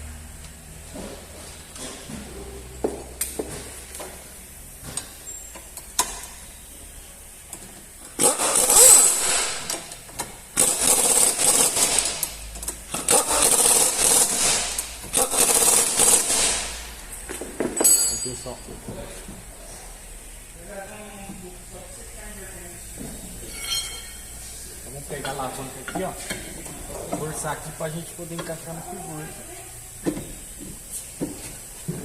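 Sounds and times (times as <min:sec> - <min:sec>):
power tool running in bursts: 0:08.2 - 0:09.7, 0:10.6 - 0:16.8.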